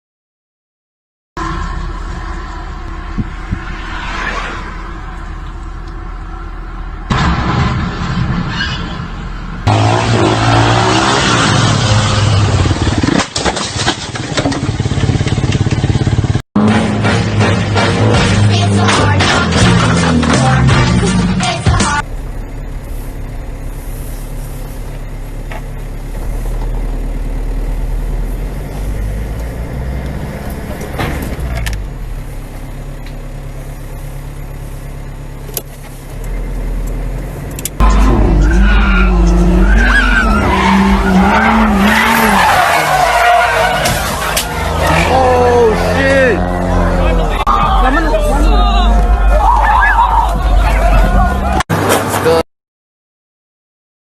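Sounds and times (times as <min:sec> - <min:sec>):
road noise: 0:01.4 - 0:52.4
vehicle engines revving: 0:09.4 - 0:52.4.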